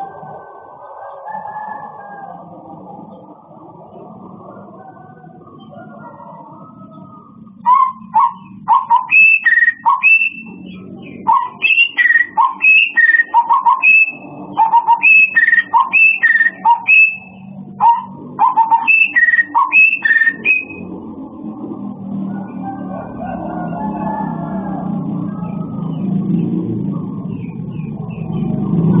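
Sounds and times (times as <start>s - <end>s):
songbird whistling phrases: 7.6s - 20.9s.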